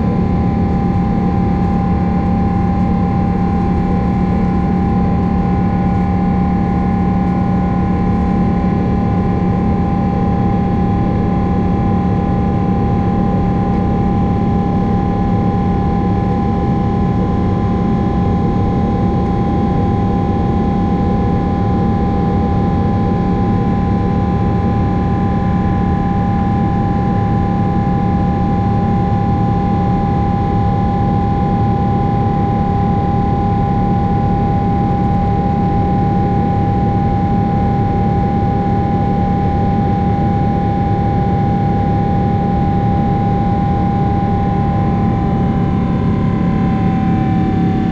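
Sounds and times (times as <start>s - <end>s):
jet engine cabin rumble: 0.0s - 47.9s.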